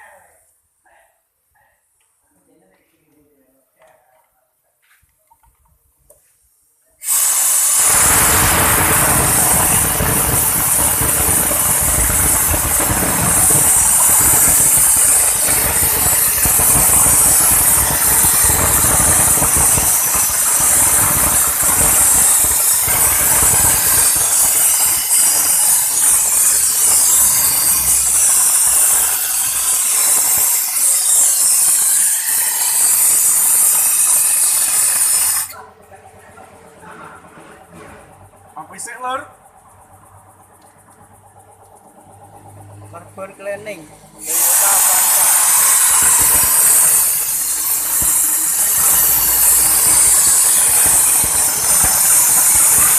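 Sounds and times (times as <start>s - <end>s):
loud steady hiss: 7.0s - 35.6s, 43.2s - 52.9s
car engine running: 7.9s - 23.6s, 35.7s - 44.2s.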